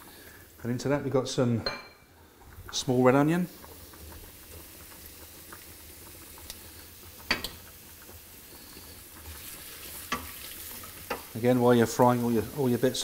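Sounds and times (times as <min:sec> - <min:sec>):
onion sizzling in a pan: 0:00.0 - 0:13.0.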